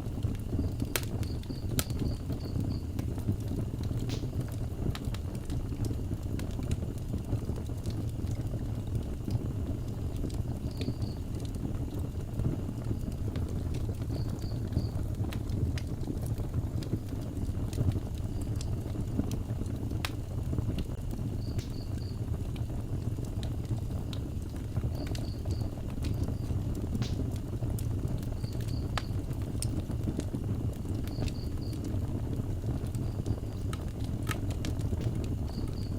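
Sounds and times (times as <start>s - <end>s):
wood fire crackling: 0.0s - 35.9s.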